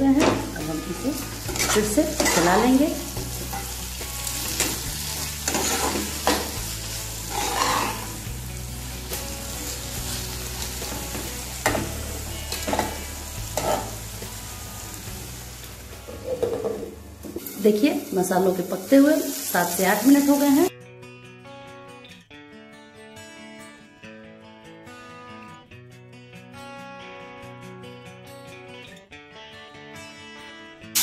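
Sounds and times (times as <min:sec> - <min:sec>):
food sizzling in a frying pan: 0:00.0 - 0:20.7
spatula scraping a pan: 0:01.4 - 0:02.6, 0:04.5 - 0:06.6, 0:07.2 - 0:08.3, 0:13.5 - 0:14.0.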